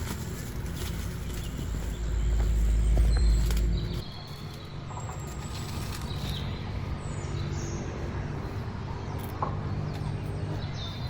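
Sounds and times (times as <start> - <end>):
deep rumble: 0.0 - 4.1
birds chirping: 0.6 - 11.0.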